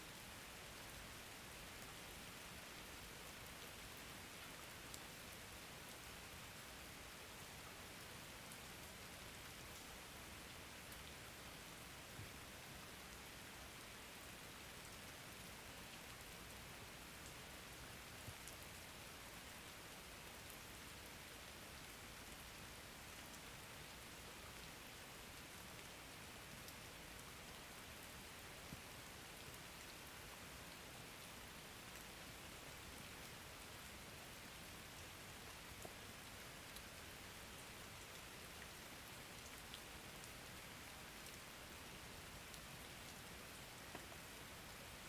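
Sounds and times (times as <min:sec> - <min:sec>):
faint rain falling: 0:00.0 - 0:45.0
raindrop ticks: 0:43.8 - 0:44.2.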